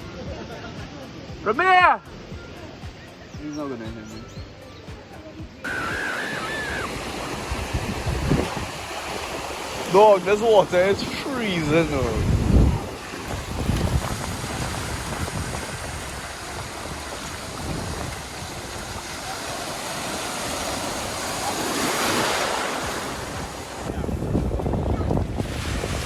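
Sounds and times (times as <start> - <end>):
sea surf washing: 5.6 - 26.0
wind buffeting microphone: 5.6 - 26.0.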